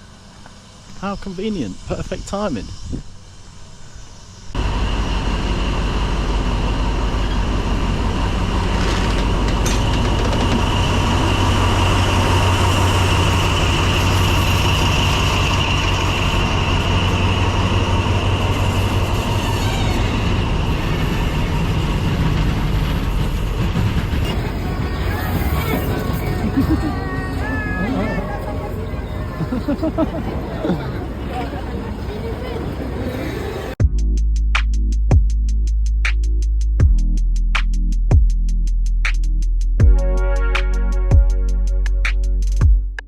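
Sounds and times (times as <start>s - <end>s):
high whine: 0.0s - 33.8s
train wheels rumbling on track: 4.5s - 33.8s.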